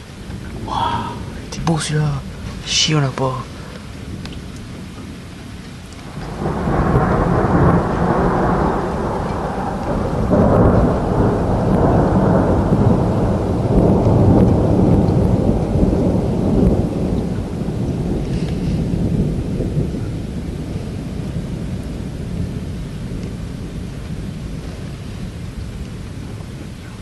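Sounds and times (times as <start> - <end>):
rain falling: 0.0 - 27.0
thunder rumbling: 0.0 - 27.0.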